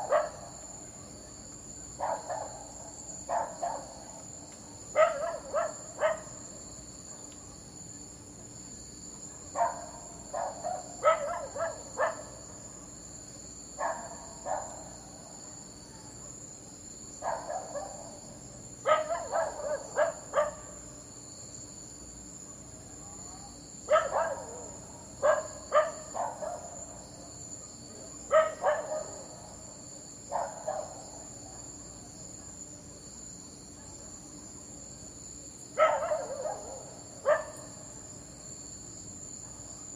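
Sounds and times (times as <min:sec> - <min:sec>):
dog barking: 0:00.0 - 0:00.5, 0:02.0 - 0:04.2, 0:04.9 - 0:06.4, 0:09.3 - 0:13.0, 0:13.8 - 0:15.0, 0:17.2 - 0:18.2, 0:18.8 - 0:20.8, 0:23.9 - 0:27.0, 0:27.6 - 0:29.5, 0:30.3 - 0:32.7, 0:33.7 - 0:34.1, 0:35.8 - 0:37.8, 0:39.4 - 0:39.8.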